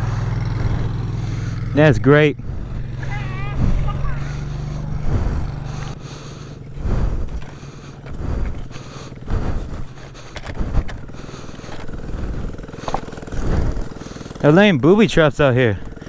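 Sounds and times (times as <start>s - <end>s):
mini bike engine revving: 0.0s - 16.0s.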